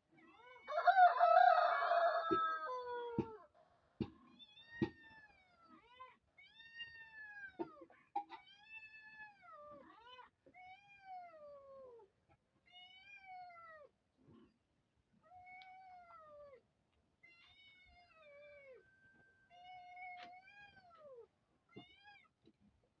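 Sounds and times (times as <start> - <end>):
cat meowing: 17.3 - 22.3.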